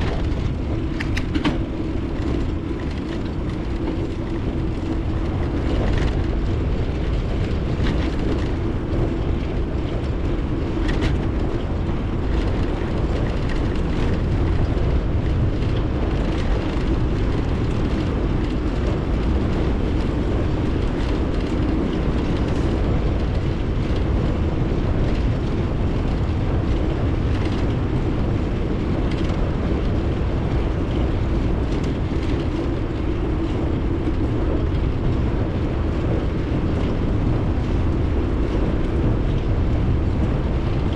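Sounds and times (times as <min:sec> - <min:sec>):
bicycle tyres rolling on road: 0:00.0 - 0:40.9
wind on microphone: 0:00.0 - 0:40.9.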